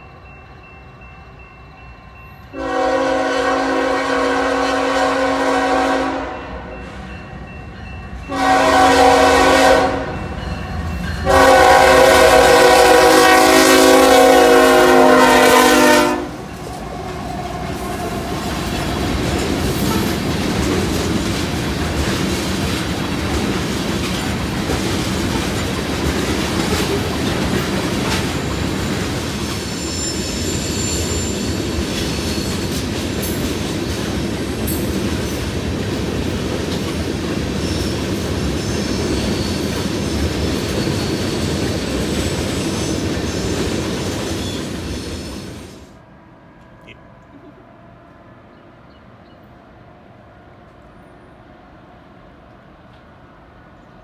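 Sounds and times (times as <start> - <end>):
train rumbling past: 0.0 - 54.0
train air horn blasts: 2.5 - 7.0, 8.3 - 10.3, 11.2 - 16.5
wheels clacking over rail joints: 16.5 - 29.7
faint wheel squeal: 29.6 - 32.7.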